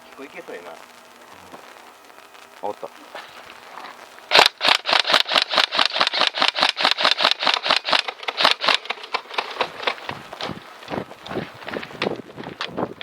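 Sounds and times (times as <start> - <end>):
airsoft gun shots: 4.3 - 9.0.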